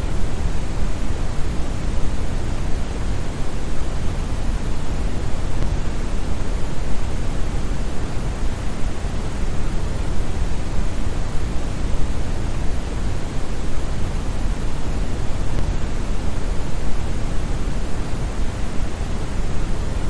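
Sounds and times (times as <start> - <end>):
deep brown noise hiss: 0.0 - 20.0.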